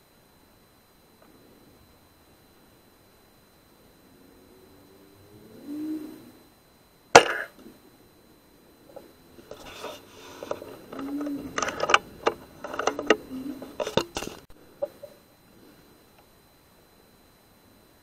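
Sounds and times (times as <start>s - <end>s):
rustling: 8.9s - 15.0s.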